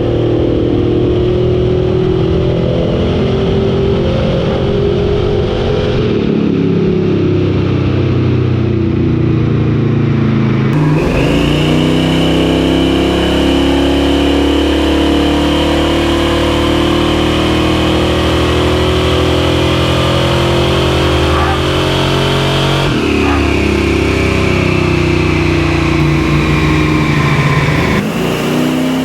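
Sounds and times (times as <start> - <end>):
truck engine running: 10.8 - 13.5, 19.8 - 29.0
high whine: 10.8 - 13.6, 22.8 - 29.0.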